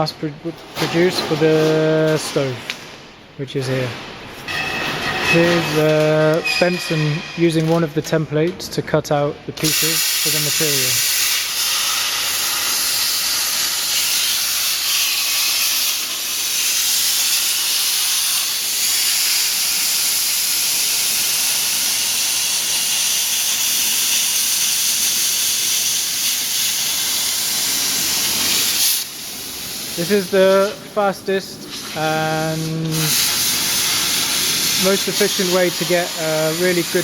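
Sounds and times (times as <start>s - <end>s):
cutting torch hissing: 9.6s - 37.0s.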